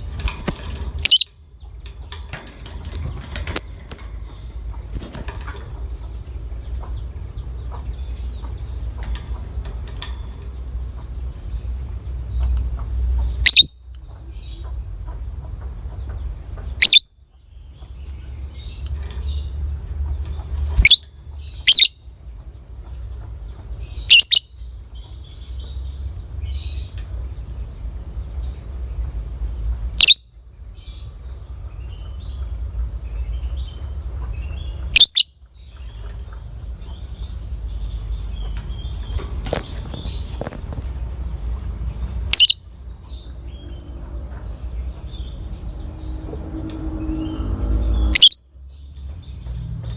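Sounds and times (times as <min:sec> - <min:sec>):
bird chattering trill: 0:00.0 - 0:11.8, 0:12.4 - 0:13.8, 0:16.8 - 0:17.0, 0:20.3 - 0:22.0, 0:41.8 - 0:45.8, 0:48.1 - 0:48.4
shrill bird calls: 0:01.0 - 0:01.4, 0:13.4 - 0:13.8, 0:20.7 - 0:22.0, 0:34.9 - 0:35.4, 0:42.3 - 0:48.4.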